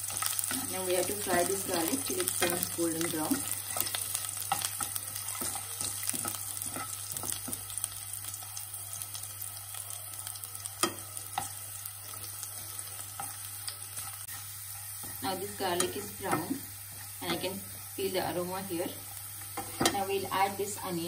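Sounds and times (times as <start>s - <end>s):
garlic sizzling in hot oil: 0.0s - 21.0s
spatula scraping and knocking pan: 0.1s - 7.8s, 19.4s - 20.1s.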